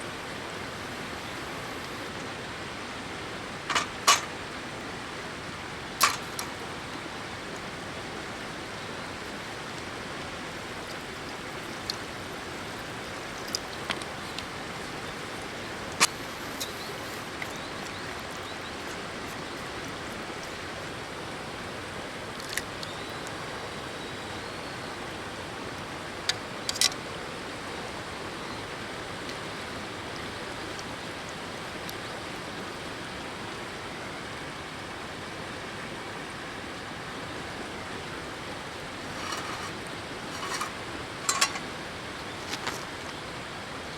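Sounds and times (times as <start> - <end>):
river water flowing: 0.0 - 43.9
short sharp clicks and knocks: 3.7 - 4.3, 6.0 - 6.5, 40.3 - 40.7, 41.3 - 41.6.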